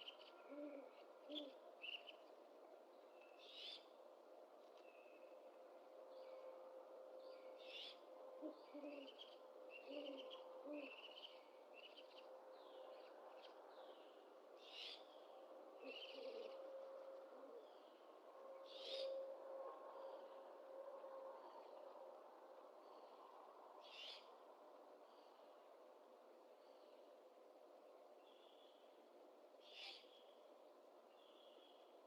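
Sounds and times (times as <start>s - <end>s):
faint owl hoots: 0.0s - 1.6s, 7.7s - 11.3s, 15.8s - 19.4s.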